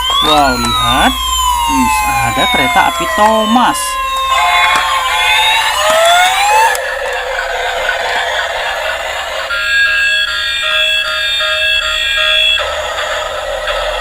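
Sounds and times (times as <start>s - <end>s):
toy electronic beeping tune: 0.0s - 7.2s, 9.4s - 12.6s.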